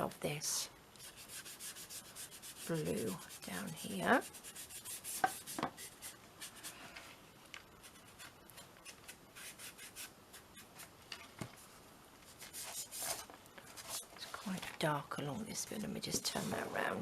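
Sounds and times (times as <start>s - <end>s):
colouring tool scratching canvas: 1.0s - 6.1s.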